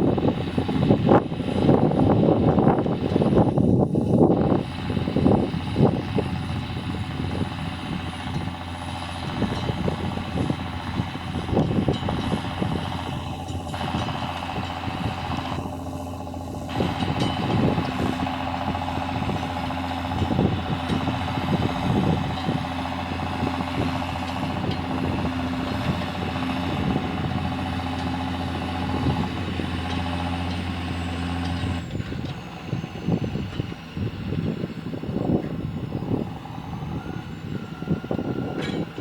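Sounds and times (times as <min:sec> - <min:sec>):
tractor engine running: 0:00.0 - 0:39.0
knocks and clanks: 0:38.5 - 0:39.0.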